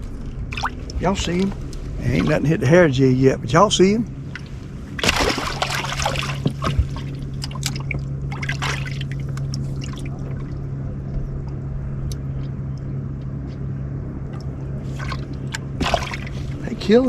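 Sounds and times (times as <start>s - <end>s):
water trickling and splashing: 0.0s - 2.6s, 4.2s - 10.8s, 14.3s - 17.0s
steady low hum: 0.0s - 17.0s.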